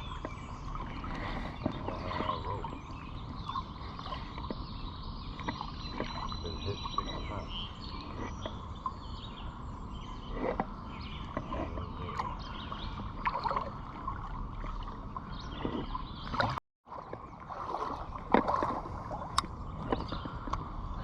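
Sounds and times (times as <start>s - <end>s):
creek water splashing: 0.0s - 21.0s.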